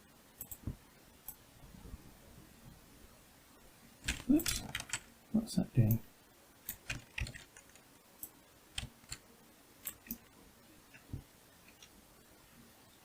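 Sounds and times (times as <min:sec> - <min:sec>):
mouse and keyboard clicks: 0:09.8 - 0:10.3.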